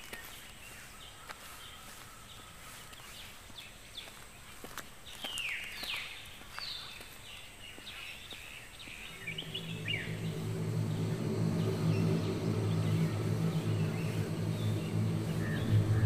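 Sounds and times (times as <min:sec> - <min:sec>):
low drone of held tones: 0:08.7 - 0:16.0.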